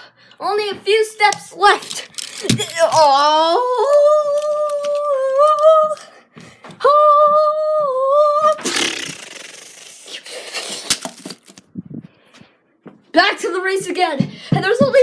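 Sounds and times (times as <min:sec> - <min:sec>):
child wailing: 0:02.6 - 0:06.0.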